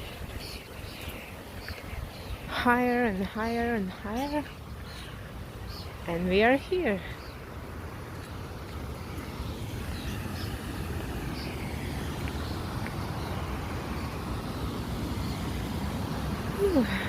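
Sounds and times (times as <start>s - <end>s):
waterfall rushing: 8.9s - 17.0s.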